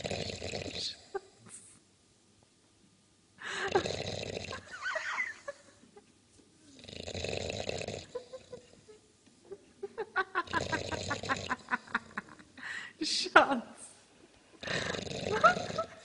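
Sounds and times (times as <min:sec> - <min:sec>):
dog snoring: 0:00.0 - 0:01.2, 0:03.7 - 0:04.7, 0:06.7 - 0:08.6, 0:10.4 - 0:12.0, 0:14.6 - 0:16.0.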